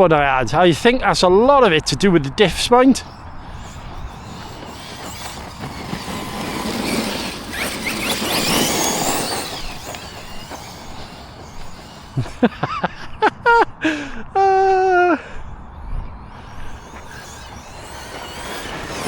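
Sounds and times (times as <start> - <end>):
electric motor whine: 2.5 - 13.4, 15.3 - 19.0
tyres on gravel: 2.6 - 13.2, 16.1 - 19.0.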